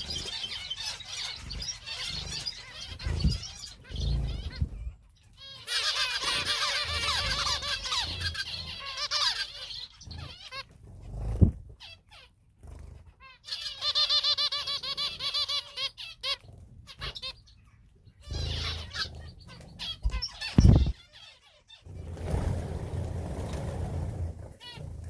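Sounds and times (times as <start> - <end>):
finches chirping: 0.0 - 22.4.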